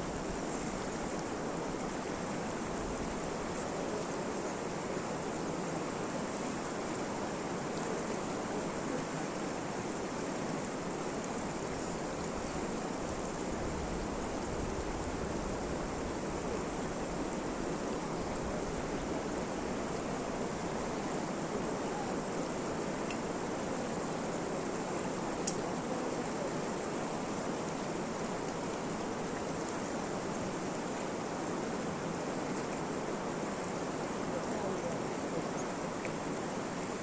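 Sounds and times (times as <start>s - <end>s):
steady rain falling: 0.0s - 37.0s.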